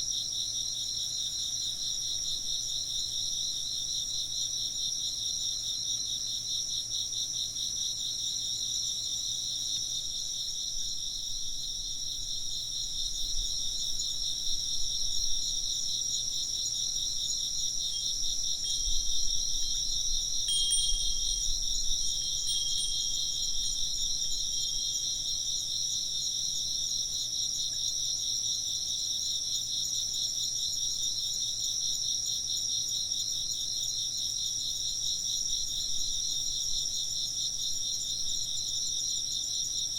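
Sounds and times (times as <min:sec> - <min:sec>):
insects chirping: 0:00.0 - 0:39.9
wind chime ringing: 0:20.4 - 0:25.2.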